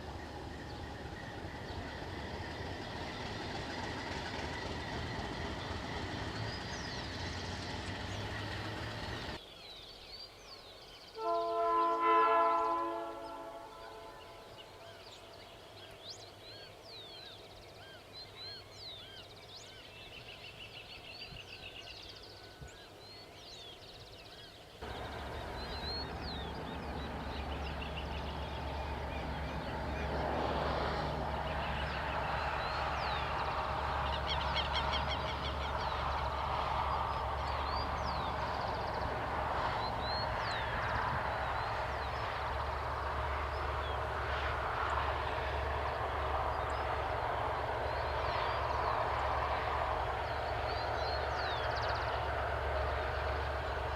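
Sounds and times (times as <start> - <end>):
diesel locomotive rumble: 0.0 - 9.4, 24.8 - 53.9
birds chirping: 0.0 - 53.9
locomotive air horn: 11.2 - 14.4.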